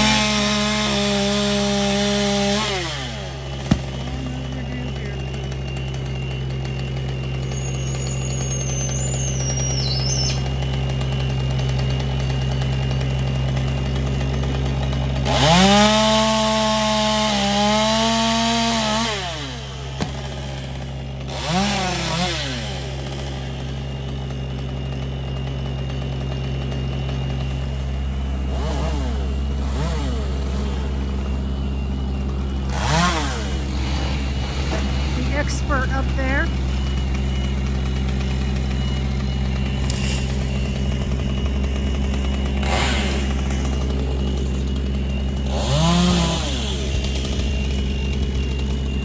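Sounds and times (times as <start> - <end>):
chainsaw revving: 0.0 - 49.0
low engine hum: 3.1 - 15.3, 26.8 - 49.0.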